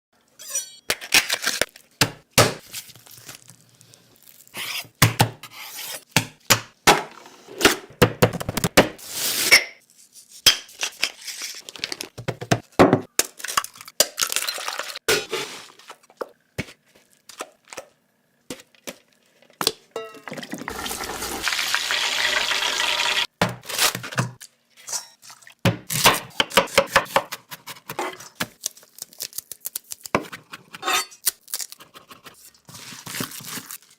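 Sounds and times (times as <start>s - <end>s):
dishes and utensils clinking: 20.0s - 20.6s.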